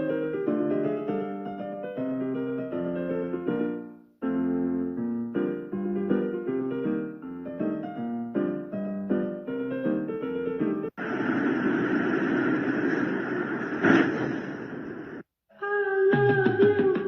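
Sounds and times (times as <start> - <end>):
piano melody over chords: 0.0 - 11.0.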